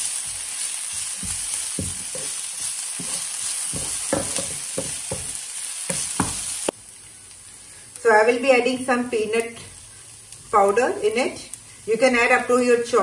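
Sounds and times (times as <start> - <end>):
wooden spoon scraping and tapping pan: 0.0 - 6.5
onion sizzling in oil: 0.0 - 13.0.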